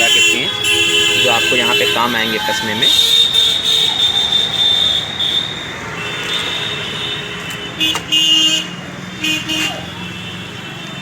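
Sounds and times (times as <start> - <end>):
street traffic noise: 0.0 - 11.0
vehicle horn honking: 0.0 - 11.0.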